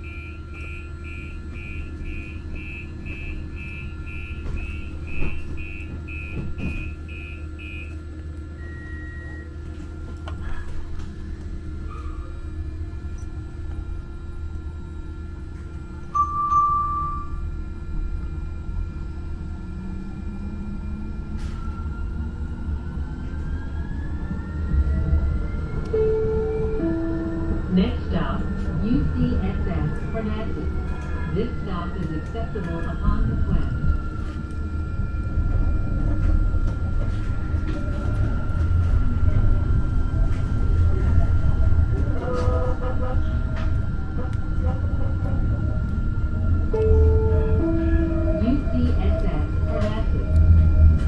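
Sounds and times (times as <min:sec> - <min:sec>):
train low rumble: 0:00.0 - 0:51.0
tram bell ringing: 0:15.8 - 0:18.2, 0:24.5 - 0:51.0.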